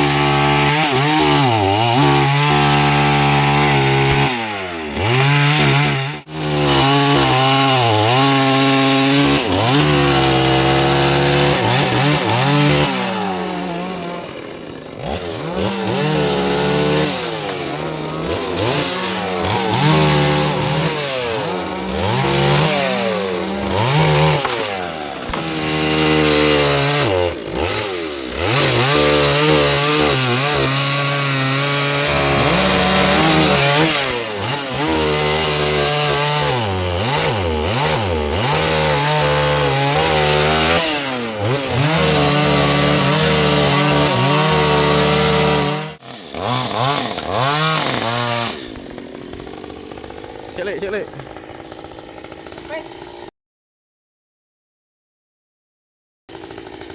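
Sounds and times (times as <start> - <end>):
chainsaw cutting wood: 0.0 - 53.3, 56.3 - 56.9.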